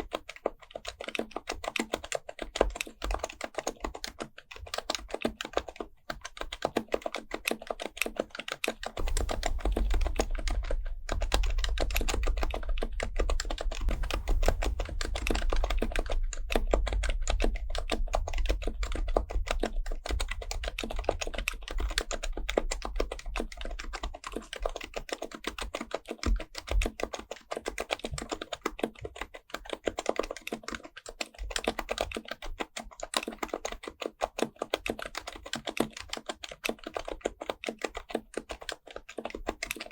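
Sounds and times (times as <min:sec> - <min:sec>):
fast keyboard typing: 0:00.0 - 0:39.9
low rumble: 0:09.0 - 0:10.3, 0:13.7 - 0:17.4.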